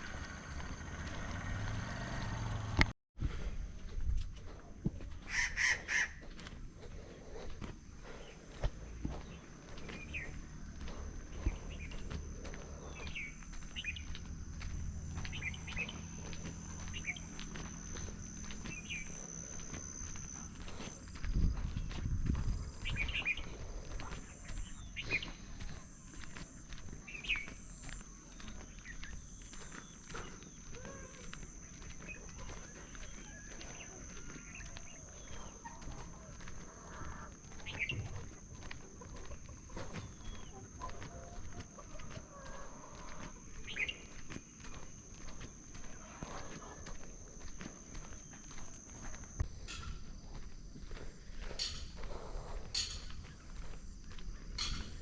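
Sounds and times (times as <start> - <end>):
footsteps on path: 0.0 - 55.0
small birds chirping: 4.4 - 55.0
steady high-pitched hum: 6.1 - 55.0
chickens clucking: 31.9 - 48.1, 51.4 - 55.0.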